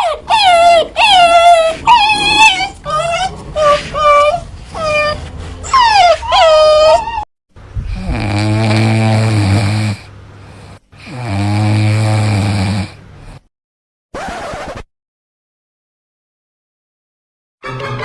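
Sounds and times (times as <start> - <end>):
dog whine: 0.0 - 7.3
pet snoring: 1.4 - 6.5, 7.8 - 13.4.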